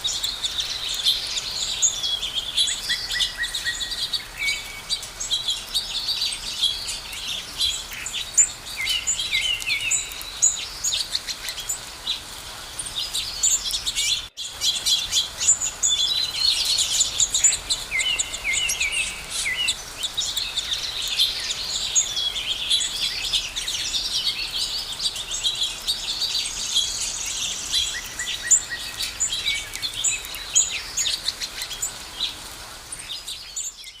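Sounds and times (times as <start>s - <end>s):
songbirds singing and chirping: 0.0s - 34.0s.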